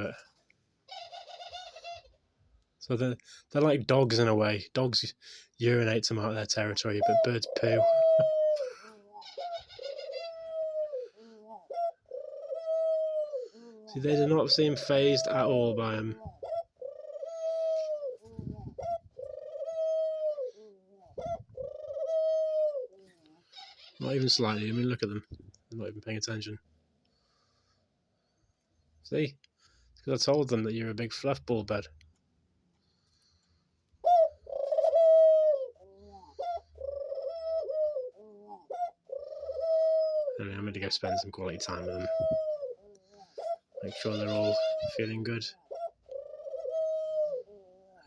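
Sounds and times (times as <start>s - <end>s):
dove cooing: 0.9s - 2.2s, 6.6s - 25.0s, 34.0s - 48.0s.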